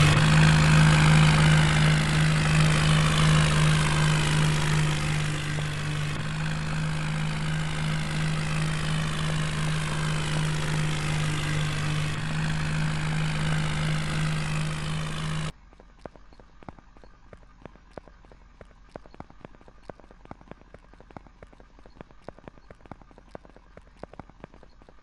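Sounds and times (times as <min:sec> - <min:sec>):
tractor engine humming: 0:00.0 - 0:25.0
faint clicks: 0:15.7 - 0:25.0.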